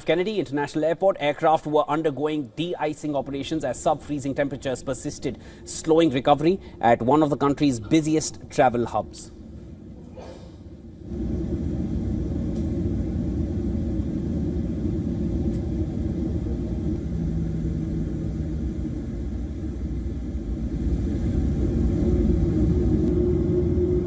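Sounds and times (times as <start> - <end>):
faint hum: 0.0 - 24.0
low rumble: 4.1 - 24.0.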